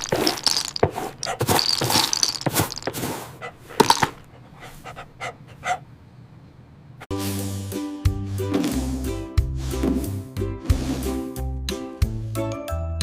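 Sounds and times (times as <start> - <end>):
dog panting and snuffling: 0.8 - 5.9.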